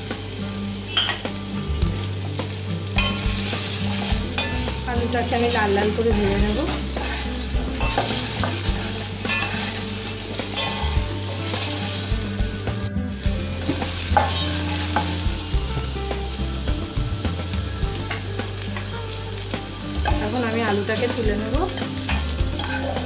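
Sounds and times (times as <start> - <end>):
potatoes sizzling in hot oil: 0.0 - 23.0
spatula scraping a pot: 6.7 - 11.9, 14.0 - 15.1, 22.5 - 23.0.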